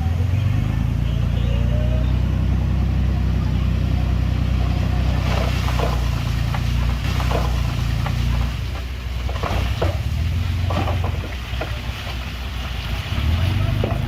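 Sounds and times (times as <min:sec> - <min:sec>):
heavy diesel engine running: 0:00.0 - 0:14.0
clattering crunches: 0:05.1 - 0:12.3.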